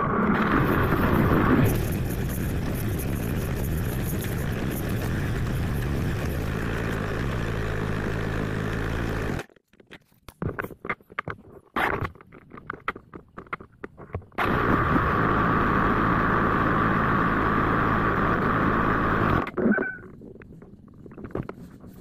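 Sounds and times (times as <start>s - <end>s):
wind noise: 0.0s - 6.9s
motorcycle engine running: 0.5s - 9.4s.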